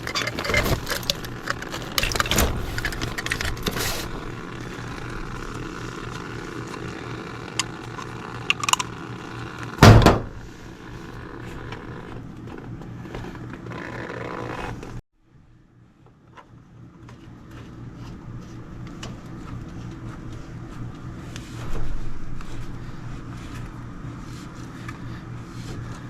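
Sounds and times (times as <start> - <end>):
small clicks and scrapes: 0.0 - 9.8
low mechanical hum: 0.0 - 26.0
loud knock: 9.8 - 10.4.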